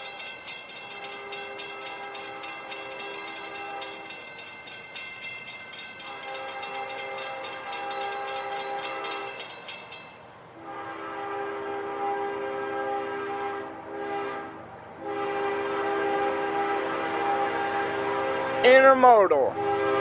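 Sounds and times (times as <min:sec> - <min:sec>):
locomotive air horn blasts: 0:00.9 - 0:04.0, 0:06.1 - 0:09.3, 0:10.6 - 0:18.8, 0:19.5 - 0:20.0.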